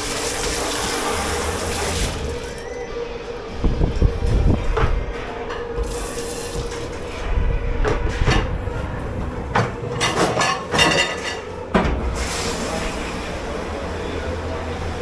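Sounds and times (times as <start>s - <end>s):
machine hum: 7.1s - 12.8s
pots and dishes clattering: 7.9s - 12.4s.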